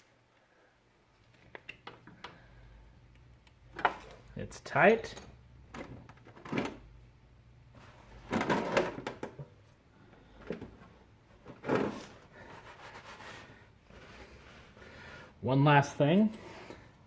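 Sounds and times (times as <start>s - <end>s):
tools and parts clattering: 8.2s - 9.5s, 10.4s - 12.2s.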